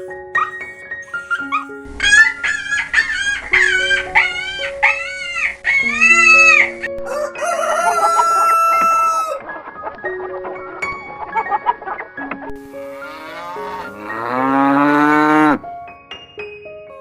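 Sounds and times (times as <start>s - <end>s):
chickens calling: 0.0s - 10.5s, 12.8s - 15.6s
background music: 0.0s - 17.0s
rooster crowing: 7.0s - 9.4s.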